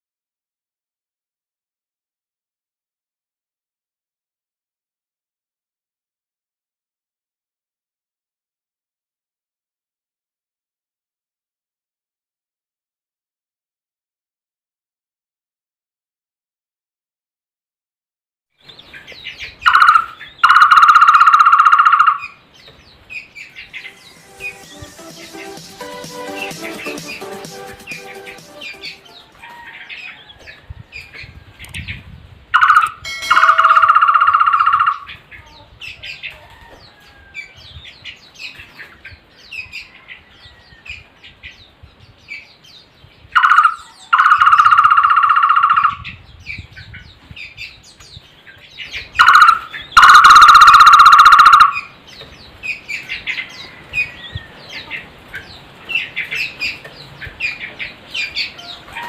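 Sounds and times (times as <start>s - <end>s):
barbet calling with trilled tone: 19.7s - 22.4s, 32.6s - 35.1s, 43.4s - 46.0s, 49.2s - 51.9s.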